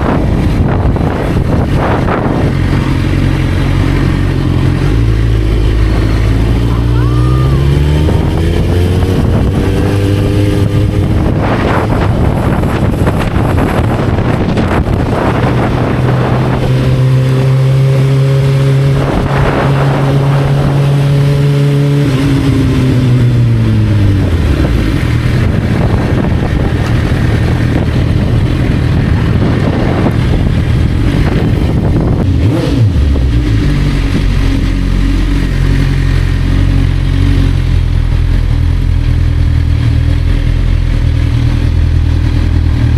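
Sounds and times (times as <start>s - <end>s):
dense rushing noise: 0.0s - 42.9s
motorcycle engine running: 0.0s - 42.9s.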